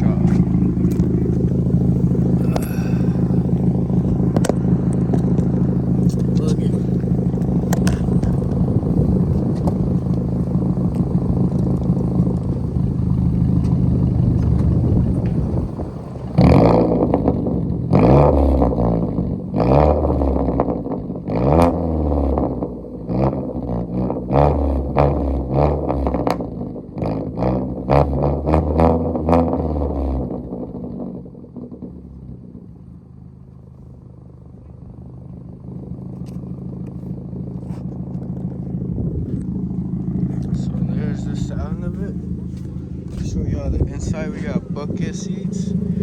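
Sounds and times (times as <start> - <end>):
car engine idling: 0.0 - 46.0
car exhaust revving: 0.0 - 46.0
exhaust cracks: 0.0 - 46.0.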